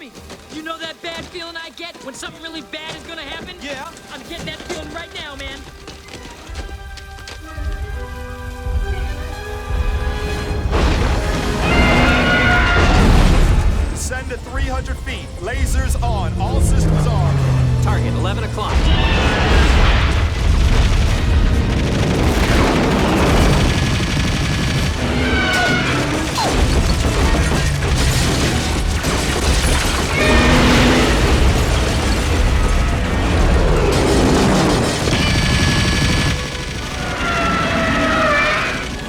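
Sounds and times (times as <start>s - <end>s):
dramatic music score: 0.0s - 39.0s
heavy booms: 9.9s - 36.6s
deep rumble: 12.8s - 36.8s.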